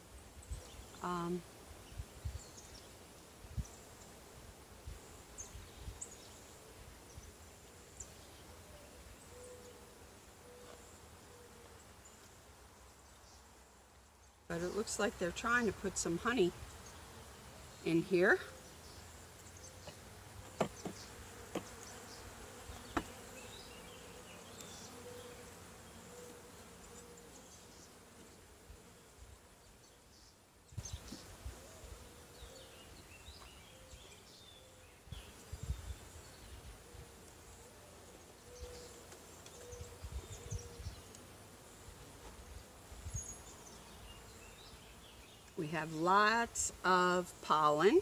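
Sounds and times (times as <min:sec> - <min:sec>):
bees buzzing: 0:14.6 - 0:29.3.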